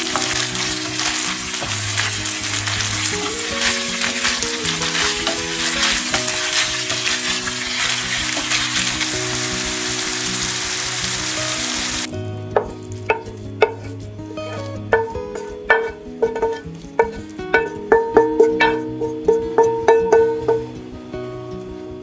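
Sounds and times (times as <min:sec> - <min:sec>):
meat sizzling in a frying pan: 0:00.0 - 0:13.9
wooden spoon stirring: 0:00.0 - 0:20.6
plucked-string music: 0:00.0 - 0:22.0.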